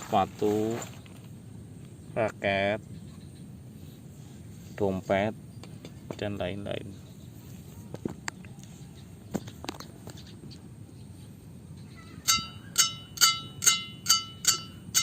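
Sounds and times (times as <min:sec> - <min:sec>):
racket strings pinging when struck: 0:12.2 - 0:15.0.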